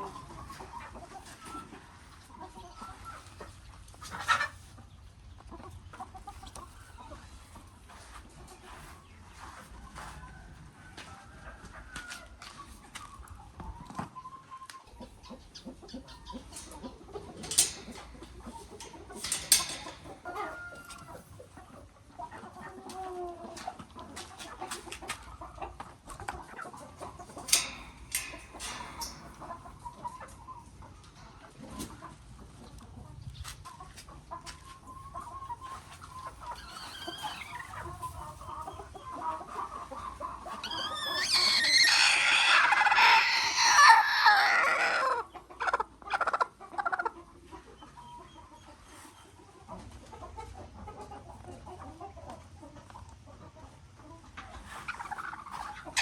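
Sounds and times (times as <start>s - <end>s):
chickens clucking: 0.0s - 56.0s
sharp clicks and knocks: 16.7s - 20.4s, 27.2s - 29.6s
harsh chicken calling: 36.4s - 38.0s, 40.4s - 46.4s.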